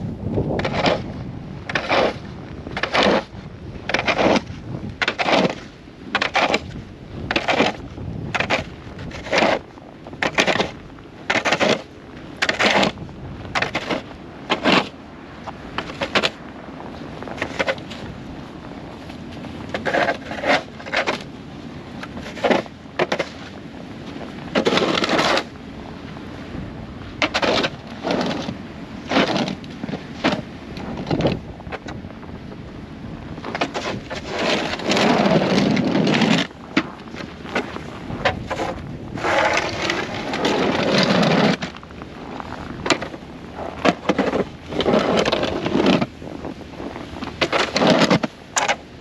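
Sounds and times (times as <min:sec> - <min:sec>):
scraping in snow and ice: 0:00.0 - 0:49.0
wind noise: 0:00.0 - 0:49.0.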